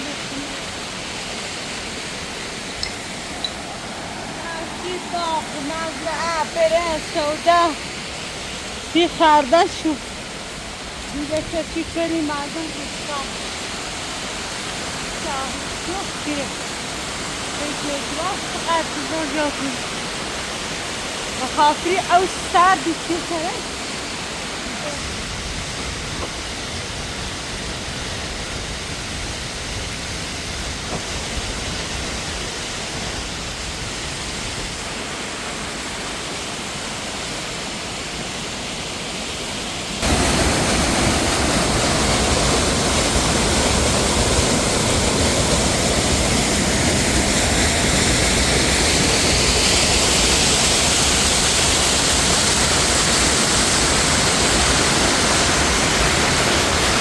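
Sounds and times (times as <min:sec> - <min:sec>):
mountain water rushing: 0:00.0 - 0:57.0.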